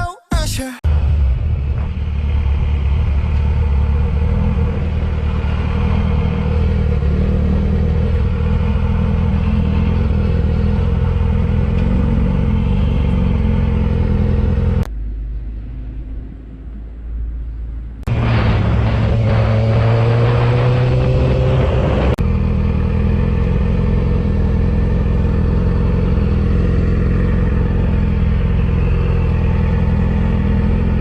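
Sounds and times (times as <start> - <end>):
motorcycle engine cruising: 0.9 - 15.6, 18.1 - 31.0
rushing wind: 15.2 - 22.8.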